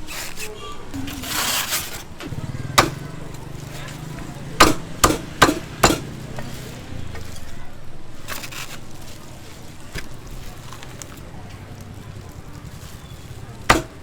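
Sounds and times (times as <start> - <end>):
cleaver chopping on wooden board: 2.8 - 3.1, 4.6 - 6.5, 13.7 - 14.0.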